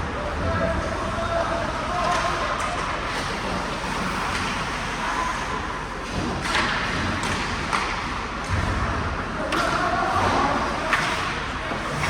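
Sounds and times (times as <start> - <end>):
hockey sticks and puck knocks: 6.1 - 8.9, 9.5 - 12.0.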